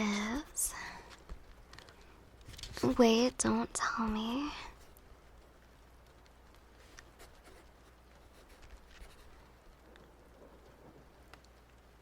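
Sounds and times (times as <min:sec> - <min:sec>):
pen scratching on paper: 0:07.2 - 0:09.4.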